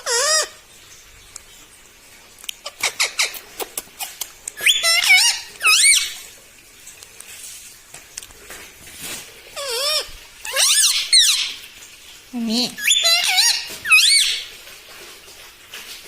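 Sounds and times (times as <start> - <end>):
parakeet chips and warbling calls: 0.0 - 0.6, 2.5 - 6.3, 9.5 - 11.7, 12.4 - 14.6.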